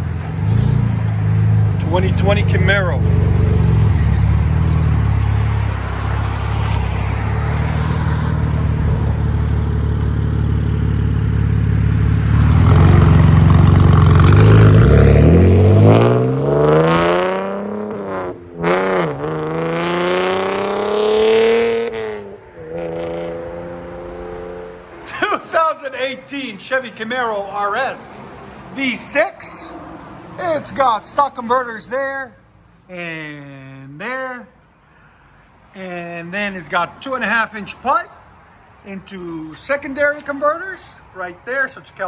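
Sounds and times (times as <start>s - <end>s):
car engine idling and revving: 0.0s - 24.9s.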